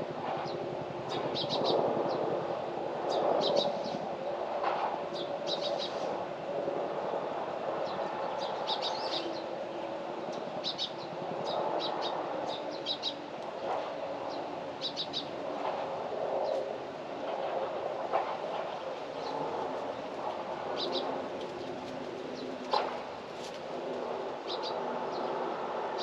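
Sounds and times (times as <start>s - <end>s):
small birds chirping: 0.4s - 2.2s, 7.8s - 9.6s, 10.3s - 15.4s, 18.6s - 25.4s.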